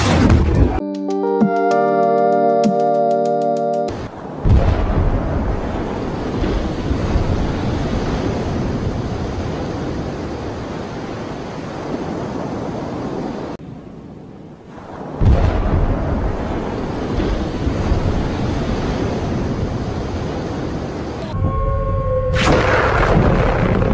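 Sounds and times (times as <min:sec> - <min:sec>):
rumble of erupting water: 0:04.2 - 0:13.6
underwater explosion: 0:04.4 - 0:10.5, 0:14.9 - 0:20.4, 0:21.9 - 0:23.9.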